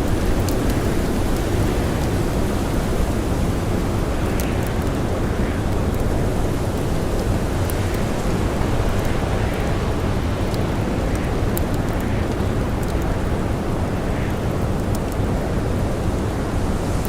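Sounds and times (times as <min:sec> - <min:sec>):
blizzard wind: 0:00.0 - 0:17.0
campfire crackling: 0:00.0 - 0:17.0.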